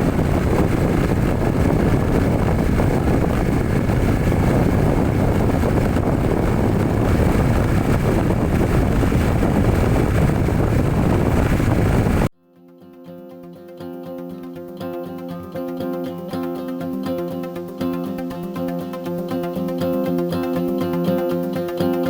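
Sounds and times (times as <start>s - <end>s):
vehicle engine running: 0.0s - 12.3s.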